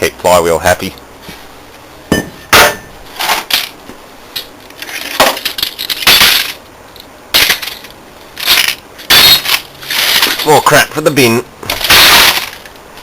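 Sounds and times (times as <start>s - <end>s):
metal flywheel smashing glass: 4.9s - 6.6s, 7.4s - 10.7s, 11.7s - 12.7s.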